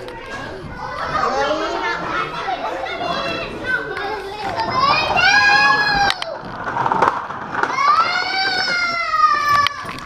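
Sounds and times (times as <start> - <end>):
children chattering: 0.0 - 6.8, 7.5 - 10.0
child squealing: 7.7 - 10.0.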